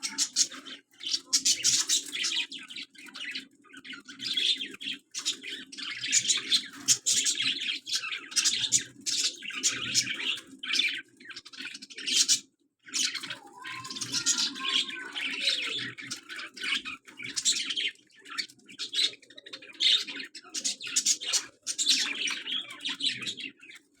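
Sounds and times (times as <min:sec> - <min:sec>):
parrot chirping: 0:00.0 - 0:00.5, 0:13.6 - 0:15.2.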